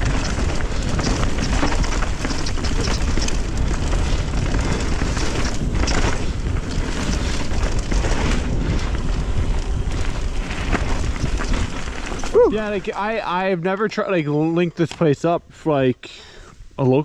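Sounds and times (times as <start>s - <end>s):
wind buffeting microphone: 0.0s - 13.3s.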